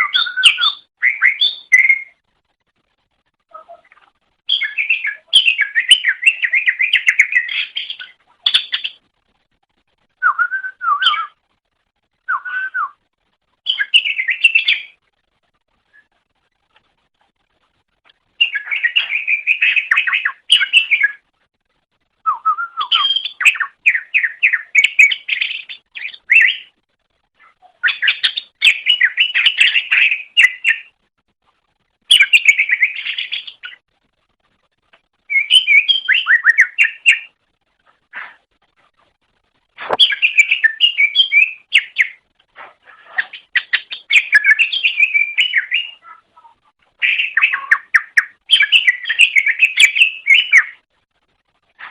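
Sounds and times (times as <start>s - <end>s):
bird singing chirps and whistles: 0.0s - 2.2s, 3.5s - 9.0s, 10.2s - 11.4s, 12.2s - 13.0s, 13.6s - 15.0s, 18.4s - 21.2s, 22.2s - 26.8s, 27.8s - 30.9s, 32.1s - 33.8s, 35.2s - 37.4s, 39.9s - 42.2s, 43.0s - 46.2s, 47.0s - 50.8s.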